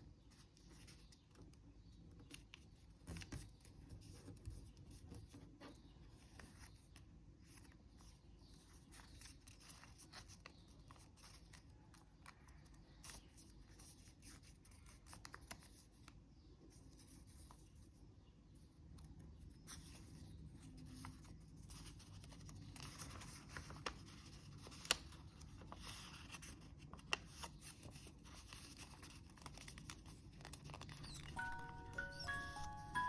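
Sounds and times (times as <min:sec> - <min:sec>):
paper rustling while folded: 0:06.2 - 0:16.2, 0:19.7 - 0:33.0.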